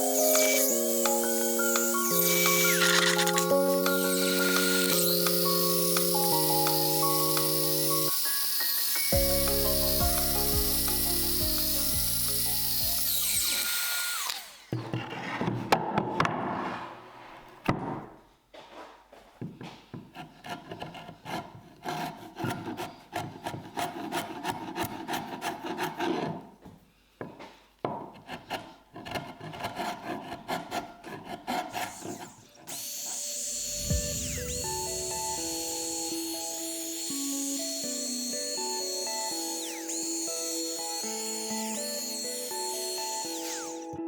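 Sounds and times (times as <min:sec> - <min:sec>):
background music: 0:00.0 - 0:13.6, 0:33.3 - 0:44.0
hand tool rasping wood: 0:00.0 - 0:15.6, 0:19.9 - 0:26.6, 0:28.0 - 0:44.0.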